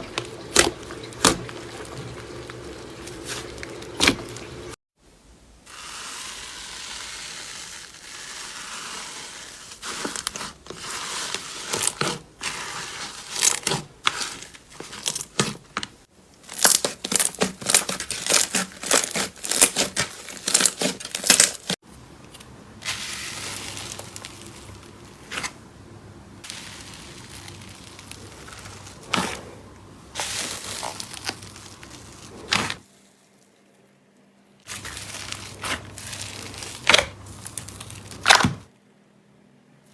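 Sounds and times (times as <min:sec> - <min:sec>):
slime crackling and popping: 0:26.4 - 0:29.4, 0:30.2 - 0:32.8, 0:34.7 - 0:38.5.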